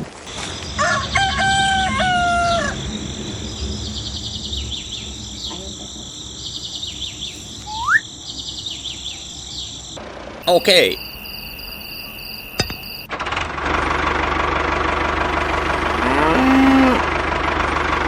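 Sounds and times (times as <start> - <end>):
insects chirring: 0.1 - 13.1, 15.0 - 16.8, 17.6 - 18.0
rooster crowing: 0.6 - 7.8, 15.0 - 17.0
short rising whistle: 7.6 - 8.1, 10.4 - 13.1.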